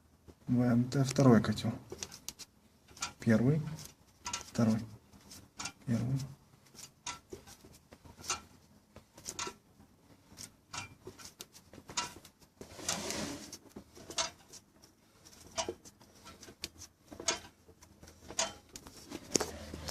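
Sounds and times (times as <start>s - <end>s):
scraping rustle: 10.2s - 19.9s.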